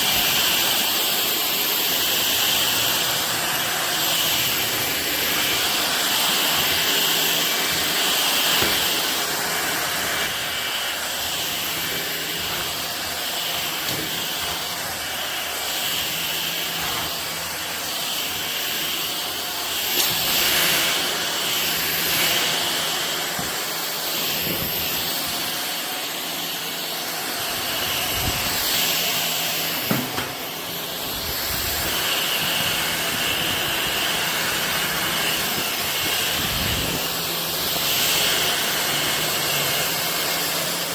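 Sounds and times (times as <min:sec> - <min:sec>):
stick vacuum running: 0:00.0 - 0:40.9.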